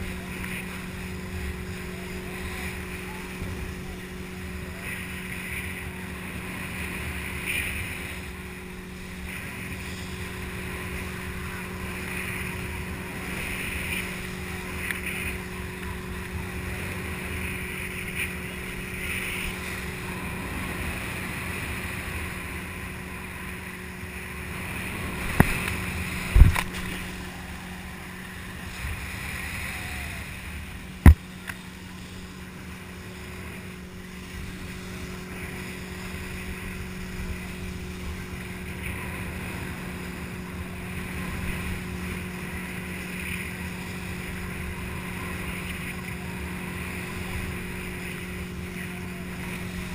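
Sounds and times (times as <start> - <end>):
motorboat engine running: 0.0 - 49.9
wind and water rushing: 0.0 - 49.9.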